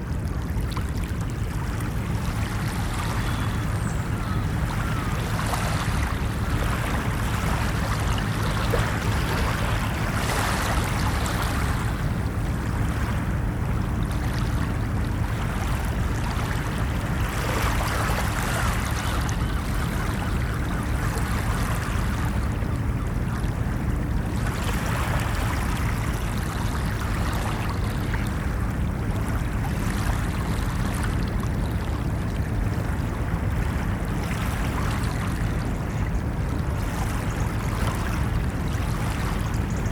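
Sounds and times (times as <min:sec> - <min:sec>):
waves breaking: 0:00.0 - 0:39.9
ocean waves rushing: 0:01.1 - 0:39.6.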